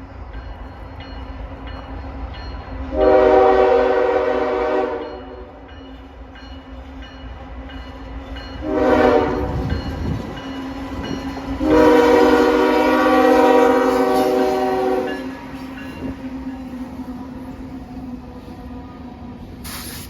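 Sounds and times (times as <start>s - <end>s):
train rumble: 0.0s - 20.0s
locomotive air horn: 2.9s - 5.6s, 8.6s - 9.7s, 11.6s - 15.4s.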